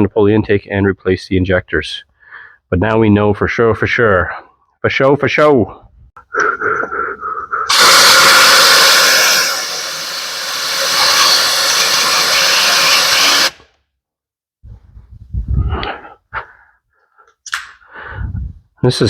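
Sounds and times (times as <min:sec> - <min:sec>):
short air pulses: 0:07.6 - 0:13.7
compressed air hissing: 0:07.7 - 0:13.6.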